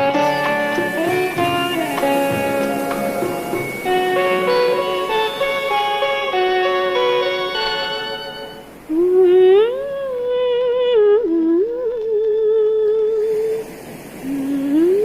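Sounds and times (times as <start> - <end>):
strummed guitar: 0.0 - 8.7
person humming with vibrato: 0.0 - 13.5.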